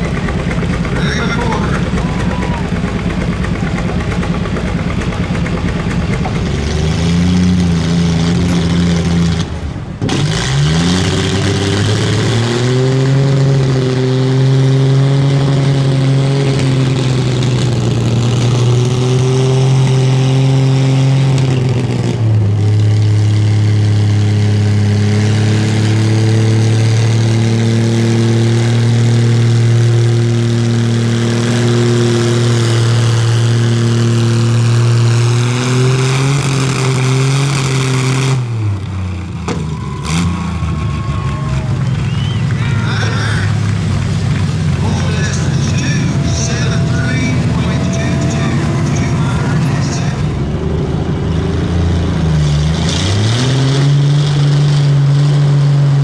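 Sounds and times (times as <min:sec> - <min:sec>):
pulling vehicle engine running hard: 0:00.0 - 0:56.0.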